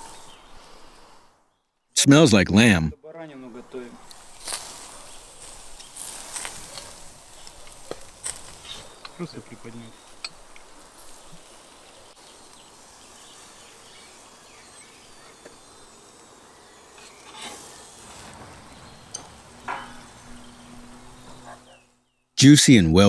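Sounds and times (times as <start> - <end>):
skewers sizzling over charcoal: 3.7 - 21.9.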